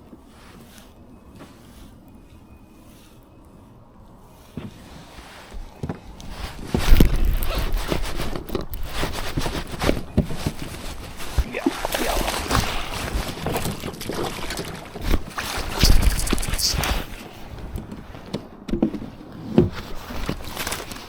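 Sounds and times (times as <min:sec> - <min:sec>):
knocks and rustles on hull: 0:05.5 - 0:21.0
water sloshing around a kayak: 0:07.1 - 0:17.5.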